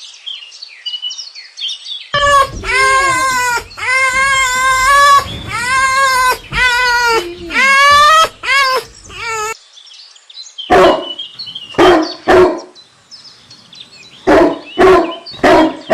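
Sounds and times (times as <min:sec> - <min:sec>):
dog whining: 0:02.2 - 0:09.6
dog barking: 0:10.7 - 0:12.7, 0:14.2 - 0:15.9.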